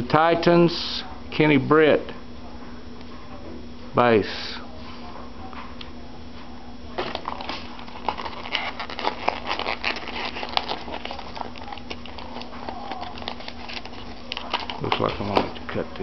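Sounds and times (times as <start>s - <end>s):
faint steady hum: 0.0s - 16.0s
hands handling cardboard packaging: 7.0s - 15.9s.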